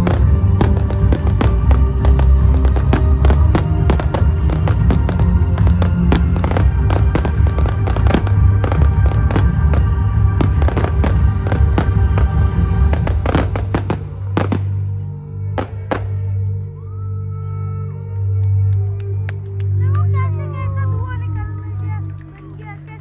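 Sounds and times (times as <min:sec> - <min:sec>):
fireworks bangs and crackles: 0:00.0 - 0:14.8, 0:15.6 - 0:16.2
music with heavy bass: 0:00.0 - 0:16.8.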